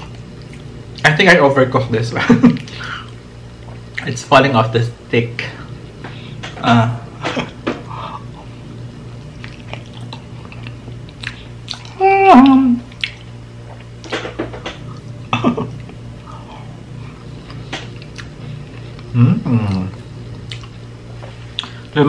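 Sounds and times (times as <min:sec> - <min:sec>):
man chewing with mouth smacks: 0:00.0 - 0:01.0, 0:09.2 - 0:14.2, 0:14.8 - 0:22.0.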